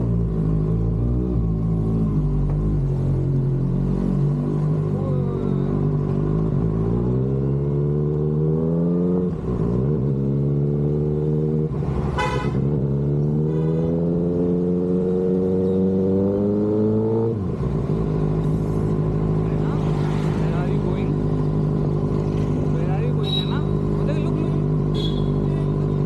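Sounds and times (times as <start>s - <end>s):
motorcycle engine accelerating: 0.0s - 26.0s
horn honk: 12.1s - 12.8s, 13.4s - 14.2s, 24.9s - 25.8s.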